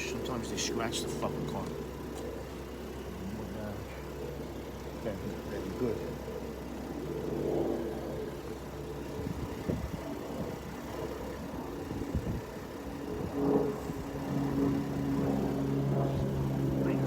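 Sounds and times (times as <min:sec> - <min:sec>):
truck engine idling: 0:00.0 - 0:13.1.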